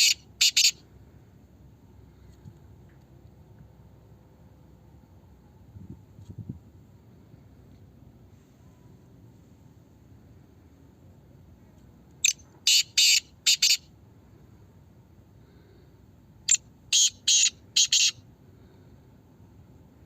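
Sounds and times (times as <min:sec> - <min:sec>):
francolin calling: 0:00.0 - 0:00.9, 0:12.2 - 0:13.9, 0:16.5 - 0:18.8.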